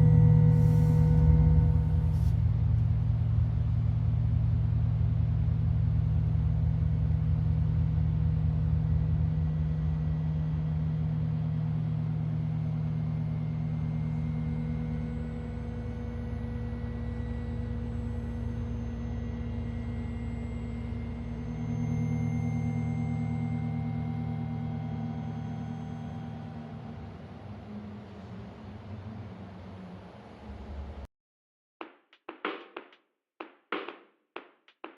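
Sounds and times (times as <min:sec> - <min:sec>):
faint ringing tones: 0:00.0 - 0:03.2
low humming drone: 0:00.0 - 0:31.1.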